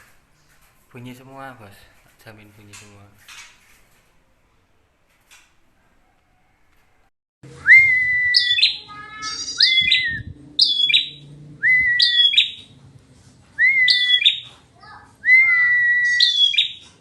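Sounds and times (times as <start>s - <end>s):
songbird whistled call: 7.6s - 12.6s, 13.6s - 14.5s, 15.3s - 16.9s
bird chattering: 8.4s - 11.2s, 12.0s - 12.7s, 13.9s - 15.0s, 16.1s - 17.0s.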